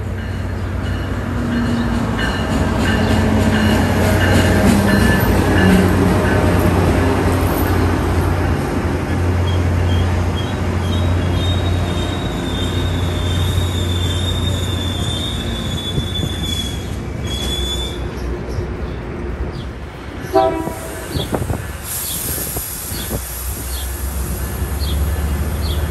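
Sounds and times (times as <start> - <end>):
diesel locomotive engine drone: 0.0 - 25.9
high wheel squeal: 9.4 - 18.6, 20.2 - 25.9
short train horn toot: 20.2 - 21.3.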